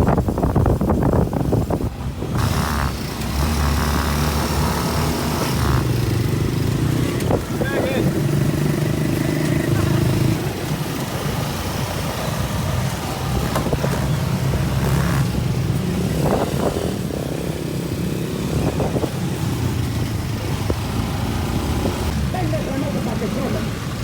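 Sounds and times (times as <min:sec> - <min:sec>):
motorcycle engines rumbling: 0:00.0 - 0:24.0.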